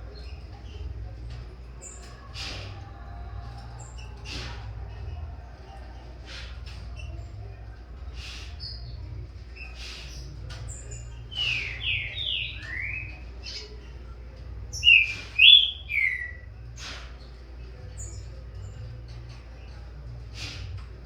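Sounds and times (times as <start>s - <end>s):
bird whistling song: 10.8s - 13.7s, 14.7s - 17.0s.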